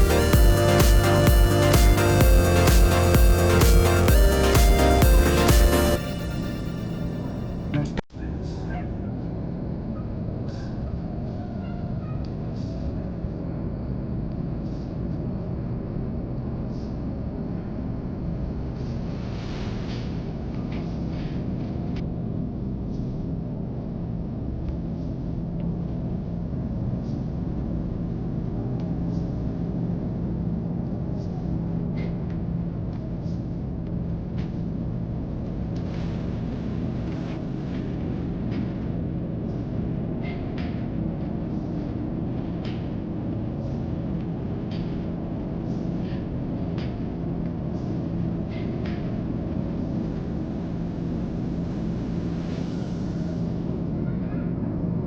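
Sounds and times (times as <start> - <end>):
steady hum: 0.0 - 8.1, 23.4 - 55.0.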